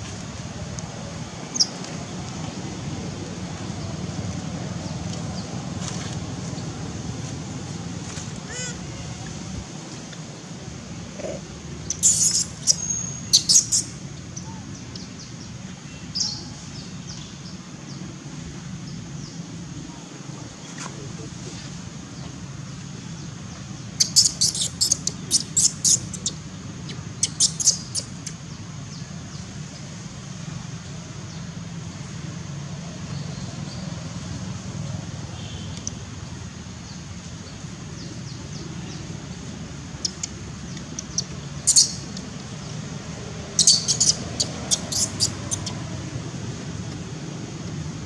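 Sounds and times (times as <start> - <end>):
birds chirping: 11.1 - 18.1, 23.0 - 29.9, 36.8 - 46.0.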